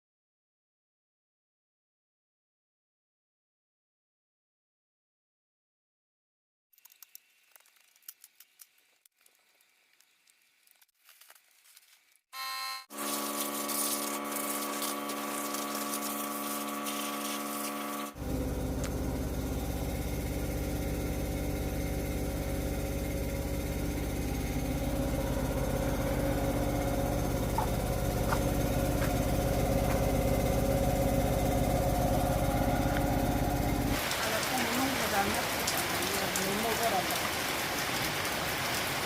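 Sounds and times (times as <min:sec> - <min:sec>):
engine running: 0:12.9 - 0:36.9.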